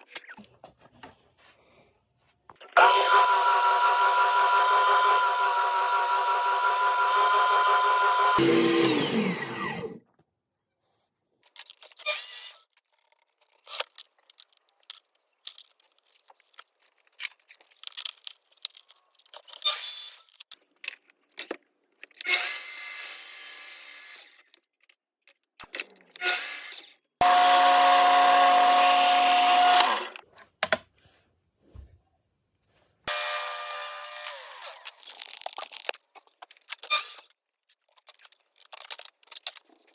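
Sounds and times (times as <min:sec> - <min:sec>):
motor spinning down: 0:02.8 - 0:10.0, 0:27.2 - 0:30.2
power tool running: 0:02.8 - 0:10.0, 0:27.2 - 0:30.2, 0:33.1 - 0:35.0
tool and handling noises: 0:32.6 - 0:39.9.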